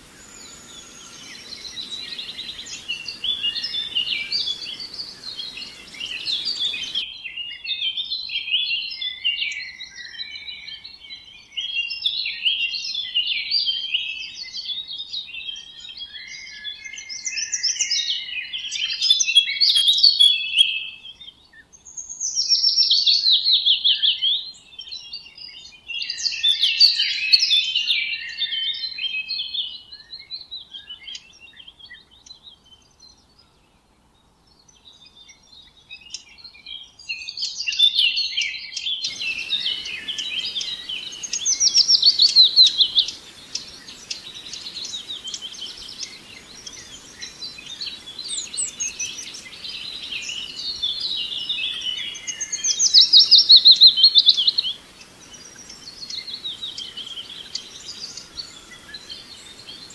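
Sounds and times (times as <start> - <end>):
birds chirping and trilling: 0.0 - 7.1, 8.9 - 33.6, 34.5 - 59.9
faint steady background hiss: 0.0 - 59.9.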